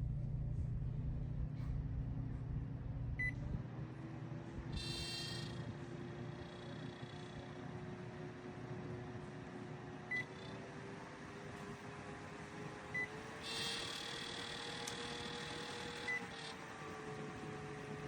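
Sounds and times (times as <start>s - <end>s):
electric fan motor hum: 0.0s - 18.0s
short high beep: 4.8s - 5.6s.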